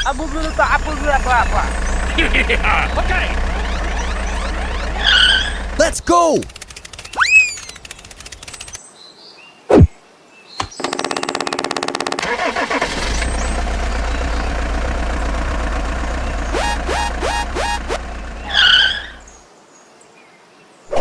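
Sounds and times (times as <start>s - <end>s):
tractor engine cranking and running: 0.0s - 8.8s, 10.6s - 19.4s
short rising chirps: 1.1s - 8.8s, 16.3s - 19.3s.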